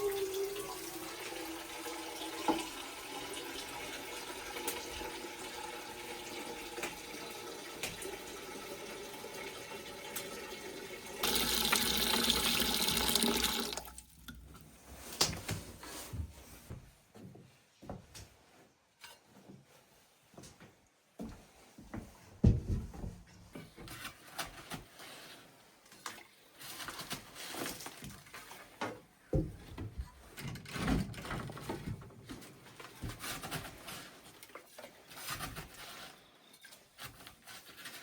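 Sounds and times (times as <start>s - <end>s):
water running: 0.0s - 15.1s.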